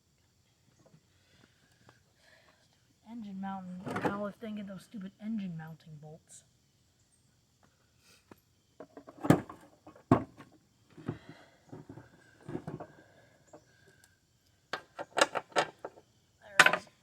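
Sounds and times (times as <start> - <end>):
tools knocking and clinking: 14.7 - 16.0, 16.6 - 16.9.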